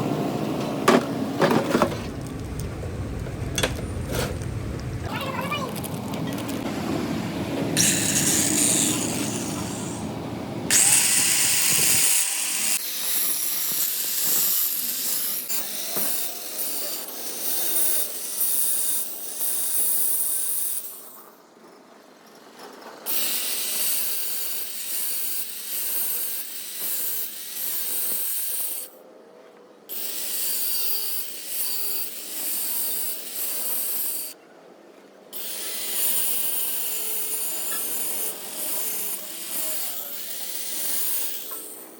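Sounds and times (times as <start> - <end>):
tool scraping metal: 7.8 - 10.0, 35.4 - 41.9.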